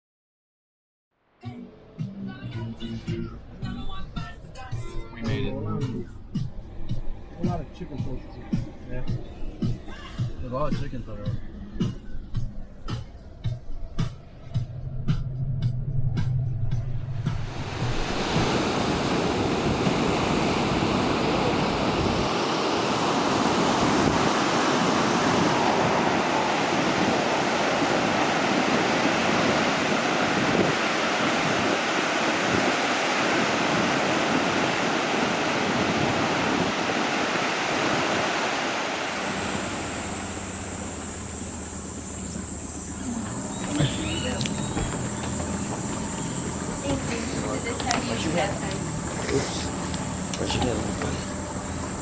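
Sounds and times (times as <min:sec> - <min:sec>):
water rushing: 0:16.8 - 0:52.0
high insect buzz: 0:25.6 - 0:52.0.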